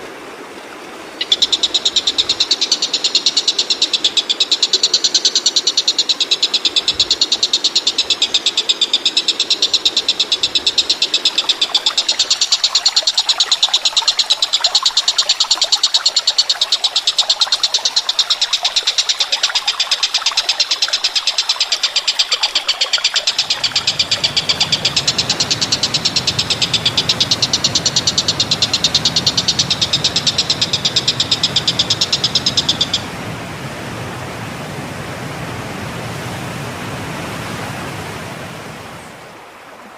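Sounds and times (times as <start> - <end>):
rapid pulsed animal trill: 1.2 - 33.1
steady rushing noise: 23.2 - 39.2.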